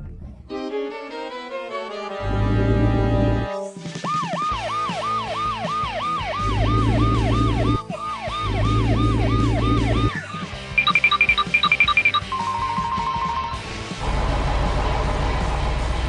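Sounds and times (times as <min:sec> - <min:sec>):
emergency siren yelping: 0:04.1 - 0:13.6.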